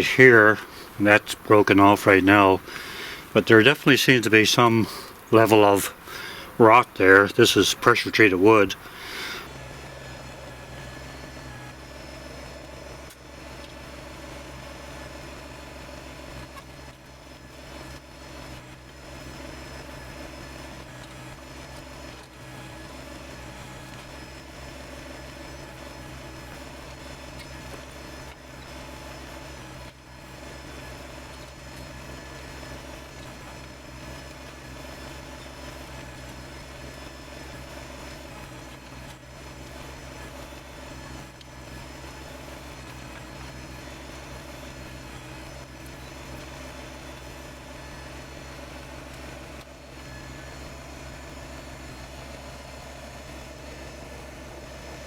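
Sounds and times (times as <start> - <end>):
tractor diesel engine droning: 0.0 - 55.0.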